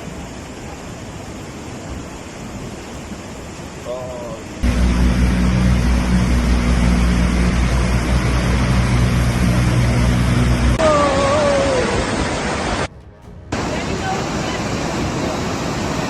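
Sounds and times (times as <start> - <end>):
flood torrent rushing: 0.0 - 12.9, 13.5 - 16.0
wavering falling tone: 4.6 - 15.1
engine hum: 4.6 - 16.0.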